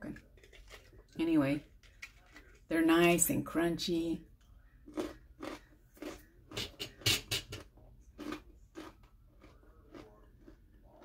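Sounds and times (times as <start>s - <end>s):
crunchy snack chewing: 4.9s - 6.7s, 8.1s - 11.0s.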